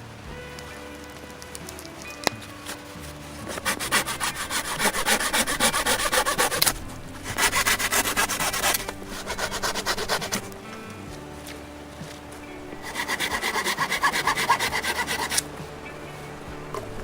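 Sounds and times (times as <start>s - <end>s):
faint music: 0.0s - 17.0s
saw cutting wood: 2.6s - 11.3s, 12.1s - 16.4s.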